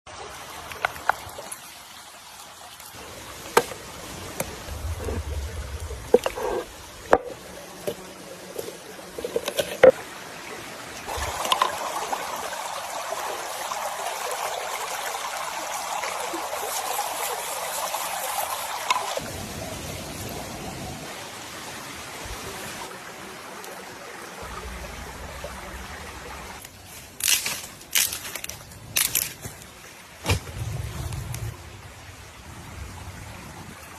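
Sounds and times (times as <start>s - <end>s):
water pouring: 11.0s - 19.3s.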